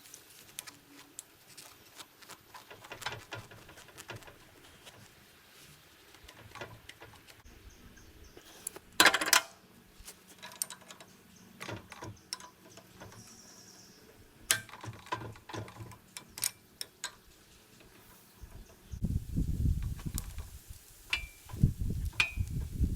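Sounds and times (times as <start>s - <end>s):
hand tools clicking on metal: 10.4s - 13.2s, 14.5s - 18.0s, 21.1s - 22.6s.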